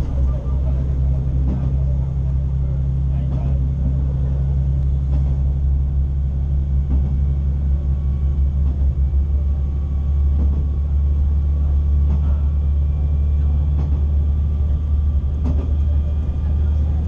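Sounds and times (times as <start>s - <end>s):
faint clicks from rails: 0.0s - 17.0s
low engine drone: 0.0s - 17.0s
wheel rumble: 0.0s - 17.0s.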